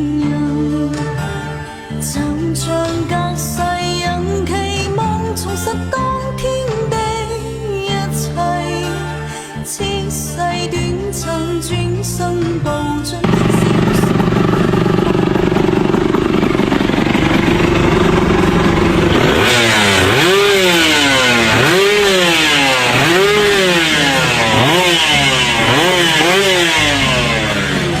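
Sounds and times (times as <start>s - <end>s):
motorcycle engine revving: 13.2s - 28.0s.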